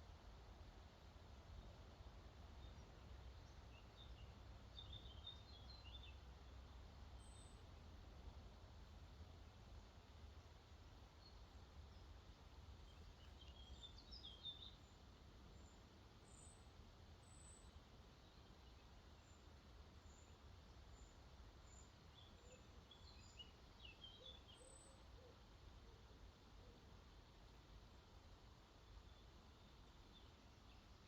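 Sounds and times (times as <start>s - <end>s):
songbirds twittering: 2.5s - 7.8s, 9.8s - 25.4s, 28.7s - 31.0s.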